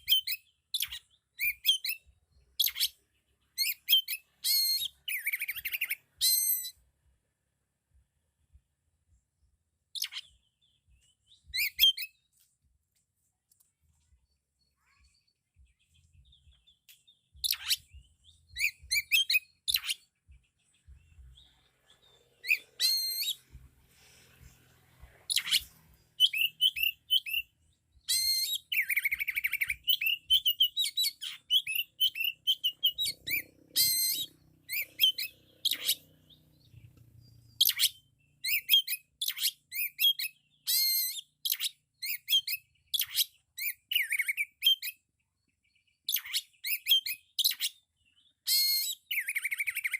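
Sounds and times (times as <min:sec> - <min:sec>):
bird singing whistled phrases: 0:11.5 - 0:12.2, 0:17.4 - 0:20.0, 0:26.2 - 0:36.0, 0:37.6 - 0:45.0, 0:48.4 - 0:49.9.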